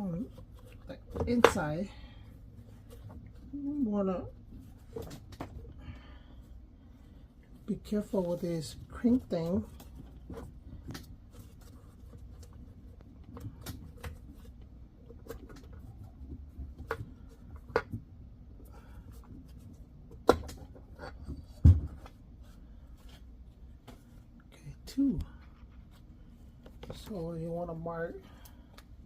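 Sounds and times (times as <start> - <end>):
dull knocks and thuds: 20.2 - 22.1.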